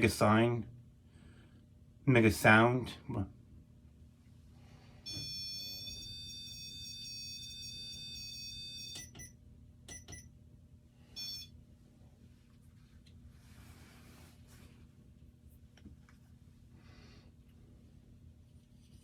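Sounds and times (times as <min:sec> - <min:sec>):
held electronic tone: 0:05.1 - 0:09.2
short beeps: 0:05.1 - 0:09.3, 0:11.2 - 0:11.5.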